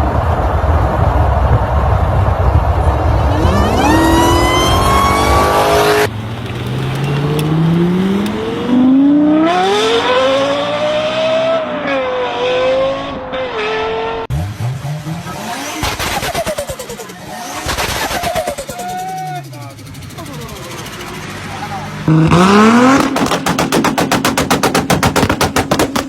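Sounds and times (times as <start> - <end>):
car engine accelerating: 0.0 - 26.0
car engine revving: 0.1 - 26.0.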